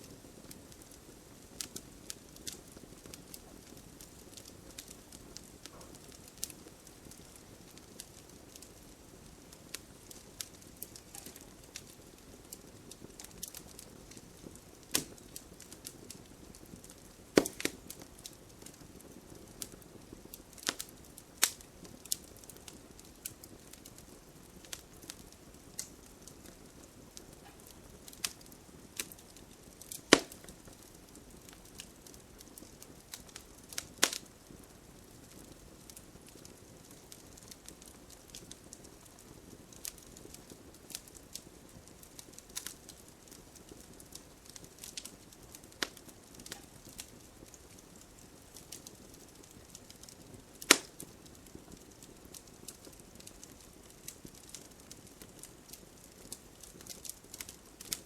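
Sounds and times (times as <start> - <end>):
campfire crackling: 0.0 - 58.0
logs popping: 17.4 - 18.0, 29.8 - 30.6, 50.6 - 51.0.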